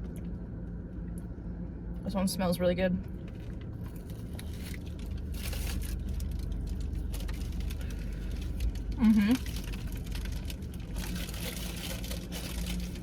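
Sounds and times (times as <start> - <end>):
steady low hum: 0.0 - 13.0
paper wrapping crinkling: 3.9 - 13.0.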